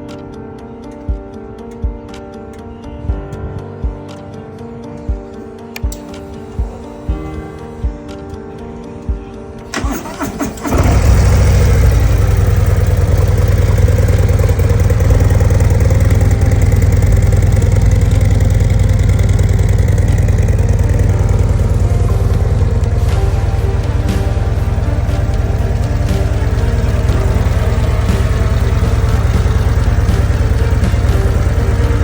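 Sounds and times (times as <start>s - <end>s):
motorcycle engine starting and idling: 9.7s - 32.0s.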